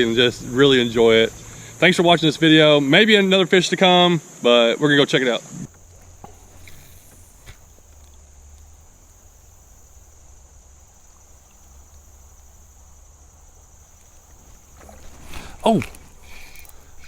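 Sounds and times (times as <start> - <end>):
high-pitched insect chirring: 5.6 - 17.0
low rumble: 5.7 - 17.0.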